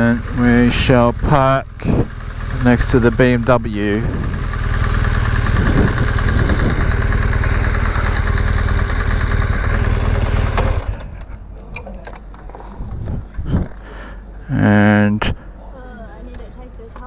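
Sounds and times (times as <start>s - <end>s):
motorcycle engine idling: 0.0s - 11.6s.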